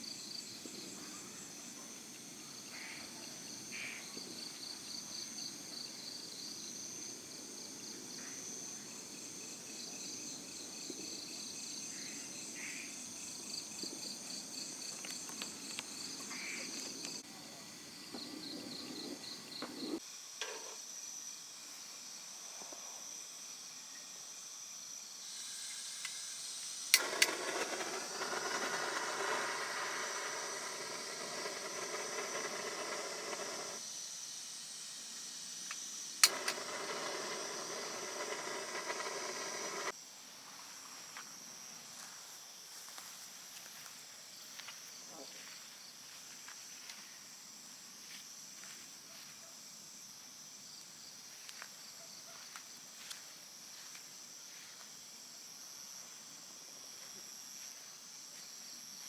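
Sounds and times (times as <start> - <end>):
insects chirping: 0.0 - 59.0
hiss of noise: 25.2 - 33.8, 36.2 - 39.9
sharp click: 36.2 - 39.9.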